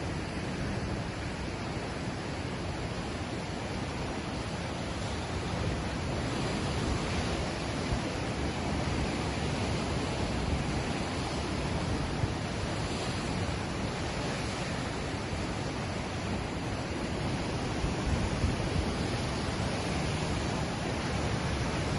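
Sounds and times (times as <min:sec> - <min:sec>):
ocean waves washing on shore: 0:00.0 - 0:21.9.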